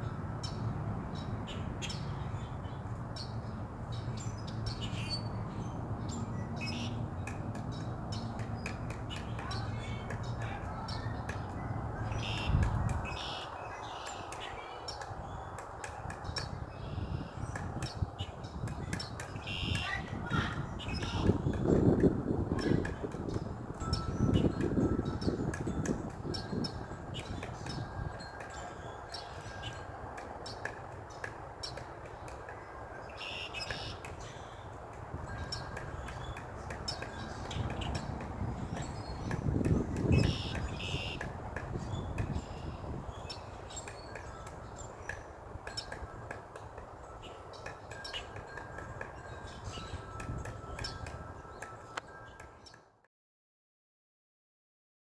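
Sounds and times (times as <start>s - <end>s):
low wind rumble: 0.0s - 51.6s
woodpecker pecking on wood: 7.2s - 10.6s, 30.1s - 32.6s, 33.4s - 51.9s
bird chirps: 7.7s - 21.3s, 33.0s - 34.6s, 35.3s - 46.4s.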